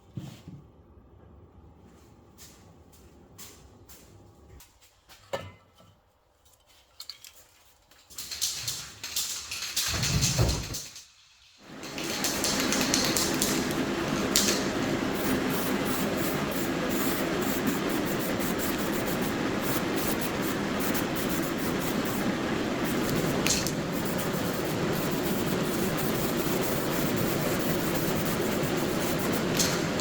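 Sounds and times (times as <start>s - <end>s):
paint spray hissing: 11.7s - 30.0s.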